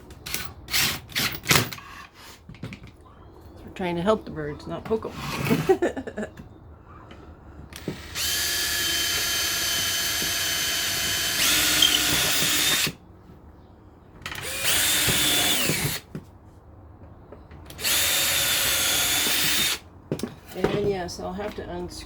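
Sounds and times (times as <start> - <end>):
power drill driving screws: 7.7 - 13.0, 14.3 - 16.1, 17.7 - 19.8.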